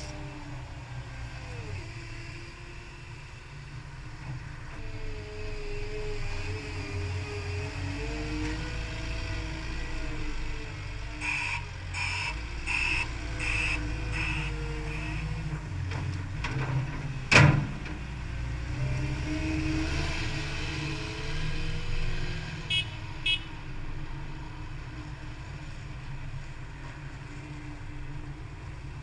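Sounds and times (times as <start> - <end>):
diesel engine running: 10.0 - 16.9.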